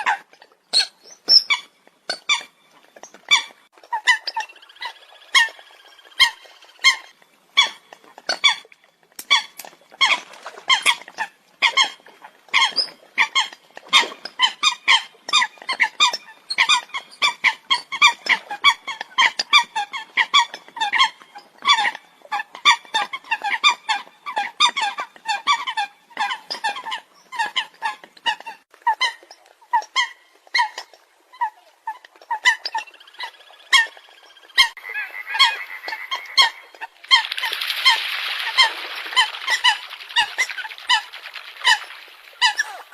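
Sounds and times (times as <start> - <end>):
coots calling: 32.4 - 42.9.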